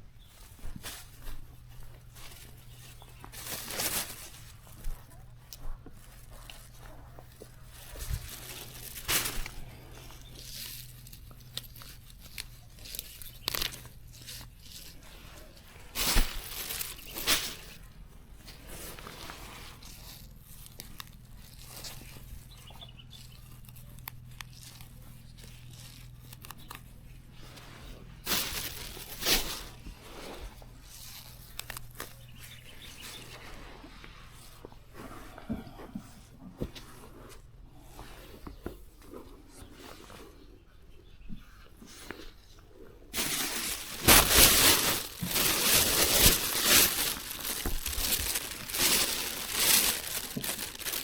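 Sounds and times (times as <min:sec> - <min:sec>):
material rustling and tearing: 0:07.7 - 0:15.2, 0:15.8 - 0:17.9, 0:23.2 - 0:26.9, 0:28.2 - 0:32.3, 0:43.2 - 0:51.0.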